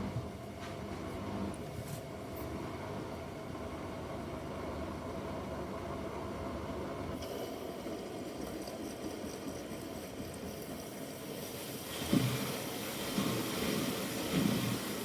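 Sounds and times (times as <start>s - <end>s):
hiss: 10.5s - 15.0s.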